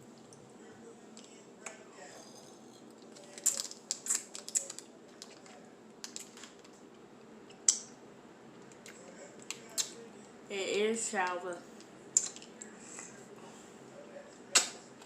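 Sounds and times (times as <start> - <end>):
low room hum: 0.0 - 15.0
plastic packaging crinkling: 3.2 - 6.7.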